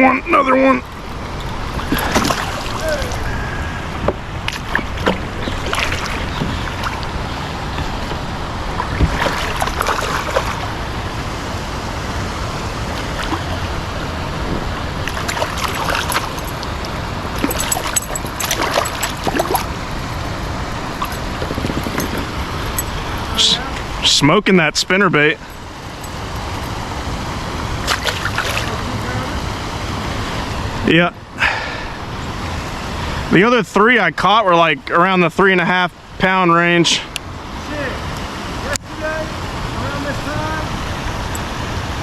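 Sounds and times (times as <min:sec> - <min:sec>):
flowing creek water: 0:00.0 - 0:42.0.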